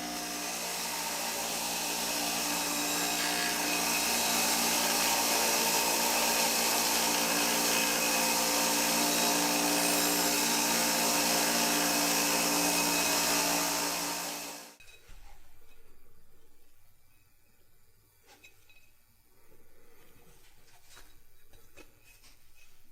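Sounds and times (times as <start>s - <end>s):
electric power tool running: 0.0s - 14.8s.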